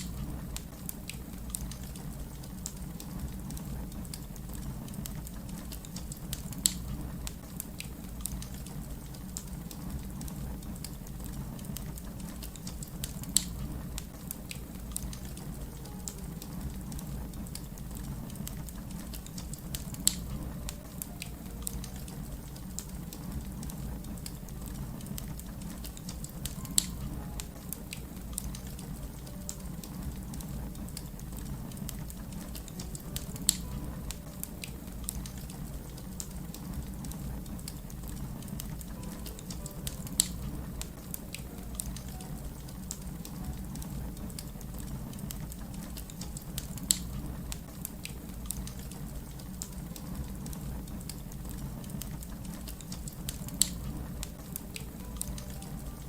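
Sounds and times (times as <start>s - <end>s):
sharp fire pops: 0.0s - 55.6s
fire crackling: 0.0s - 56.0s.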